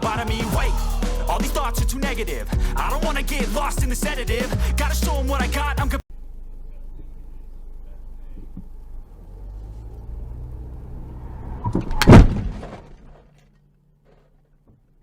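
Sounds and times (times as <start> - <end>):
car engine and road noise: 7.7 - 12.1.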